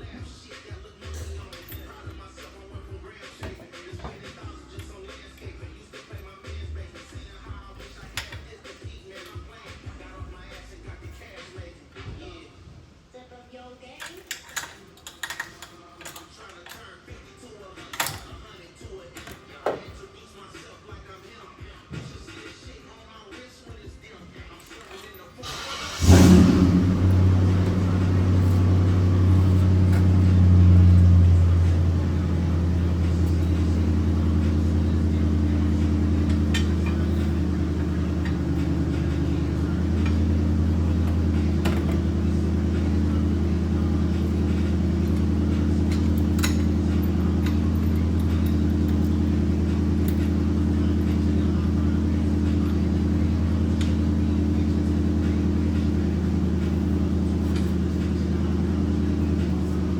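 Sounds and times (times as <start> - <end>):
car engine idling: 25.4 - 59.9.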